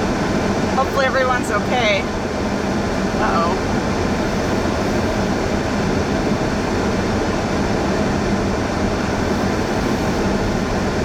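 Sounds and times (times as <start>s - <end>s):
car interior road rumble: 0.0s - 11.0s
low steady hum: 0.0s - 11.0s.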